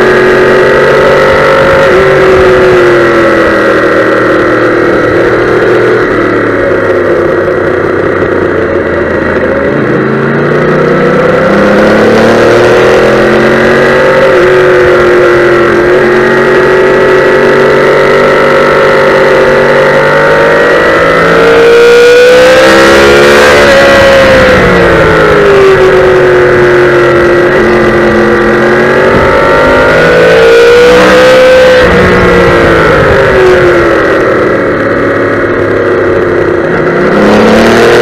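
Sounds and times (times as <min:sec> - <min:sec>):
motorcycle engine running hard: 0:00.0 - 0:38.0.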